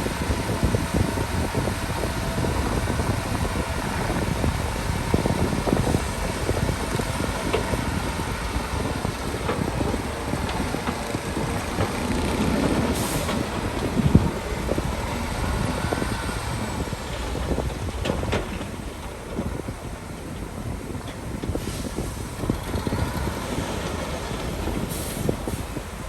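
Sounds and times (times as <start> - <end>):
bulldozer engine rumble: 0.0 - 26.0
steel tracks clanking: 0.0 - 26.0.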